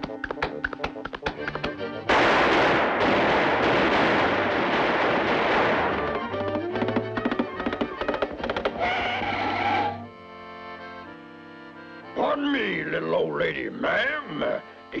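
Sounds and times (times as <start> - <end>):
orchestral music with plucked notes: 0.0 - 2.1, 5.8 - 15.0
rapid gunfire sound effects: 1.2 - 8.5.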